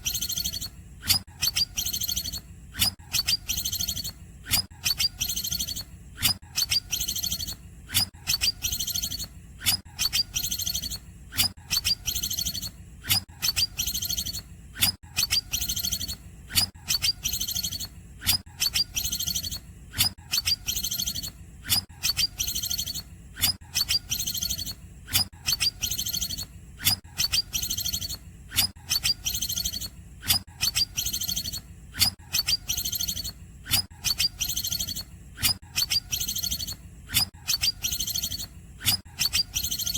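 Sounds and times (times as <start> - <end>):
bird singing high-pitched phrases: 0.0 - 2.4, 3.1 - 4.2, 4.8 - 5.9, 6.5 - 7.6, 8.3 - 9.3, 10.0 - 11.0, 11.7 - 12.7, 13.4 - 14.4, 15.2 - 16.2, 16.9 - 17.9, 18.6 - 19.6, 20.3 - 21.4, 22.0 - 23.1, 23.8 - 24.8, 25.5 - 28.2, 28.9 - 30.0, 30.6 - 39.9.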